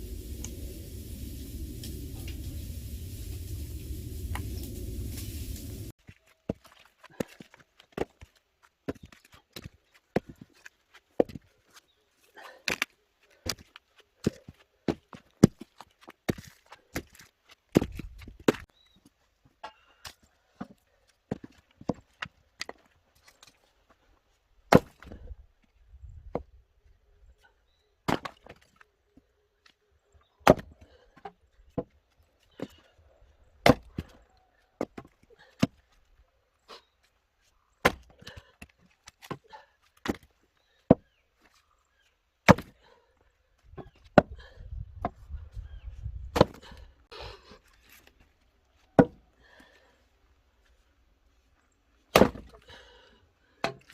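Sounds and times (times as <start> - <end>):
axe chopping firewood: 24.7 - 25.3, 28.1 - 28.6, 30.4 - 30.8, 33.6 - 34.1, 37.8 - 40.3, 42.4 - 42.8, 43.8 - 45.2, 46.3 - 46.8, 49.0 - 49.2, 52.1 - 52.7, 53.6 - 53.9.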